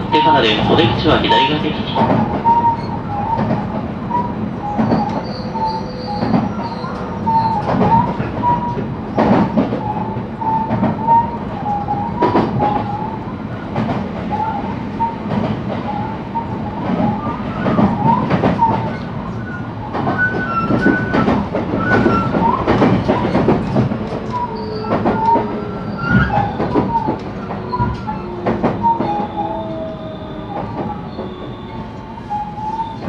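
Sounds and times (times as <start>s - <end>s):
train rumbling on rails: 0.0s - 33.0s
wavering wheel squeal: 15.9s - 33.0s.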